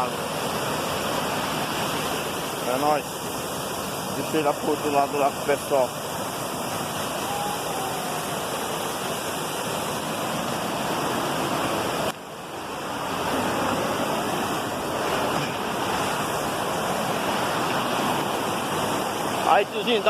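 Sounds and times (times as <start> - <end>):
waterfall rushing over rocks: 0.0 - 20.0.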